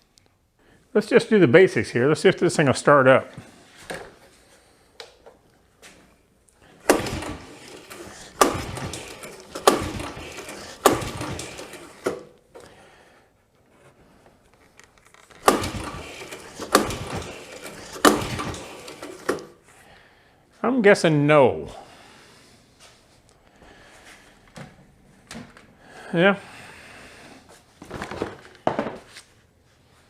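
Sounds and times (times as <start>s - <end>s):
recoil starter pulls cranking engine: 6.8s - 12.3s, 15.2s - 19.6s.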